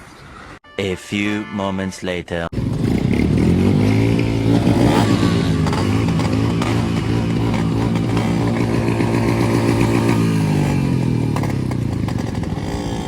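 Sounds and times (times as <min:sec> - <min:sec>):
two-stroke motorcycle engine: 0:02.5 - 0:13.0.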